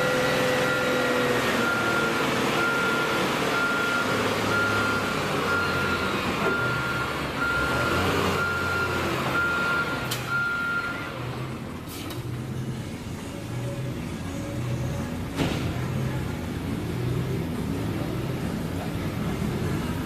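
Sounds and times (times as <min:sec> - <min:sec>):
vehicle backup alarm beeping: 0:00.0 - 0:11.1
engine rumble: 0:00.0 - 0:20.0.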